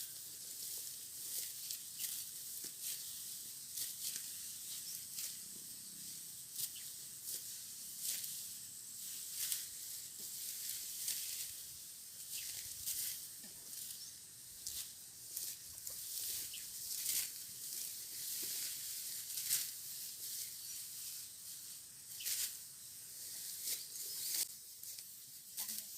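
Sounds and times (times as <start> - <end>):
steady high hiss: 0.0 - 25.9
knife cutting rice stalks: 3.8 - 5.4, 6.5 - 11.6, 12.2 - 14.0, 14.6 - 20.5, 22.1 - 22.6.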